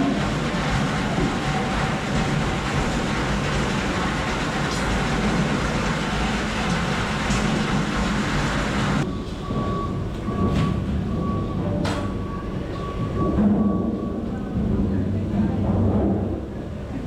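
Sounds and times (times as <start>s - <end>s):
machinery rumble and clatter: 0.0s - 17.0s
beeping tone: 9.0s - 14.7s.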